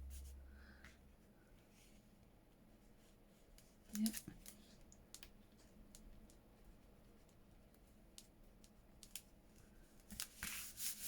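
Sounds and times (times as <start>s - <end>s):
paper rustle: 10.1s - 11.0s.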